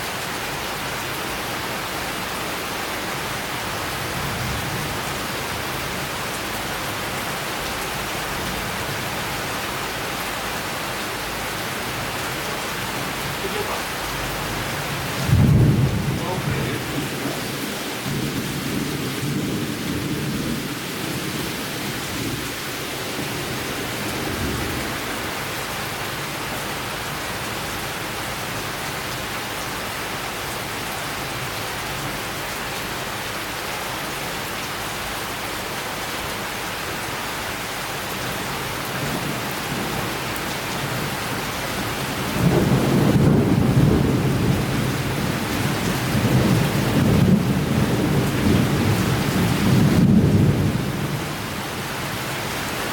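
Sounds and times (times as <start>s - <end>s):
rain falling: 0.0s - 52.9s
thunder rumbling: 12.8s - 21.5s, 41.8s - 51.4s.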